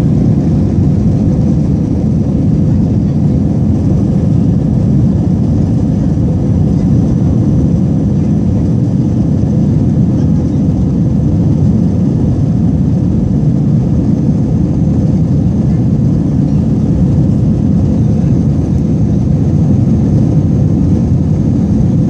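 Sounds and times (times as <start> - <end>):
jet engine roar in cabin: 0.0 - 22.0.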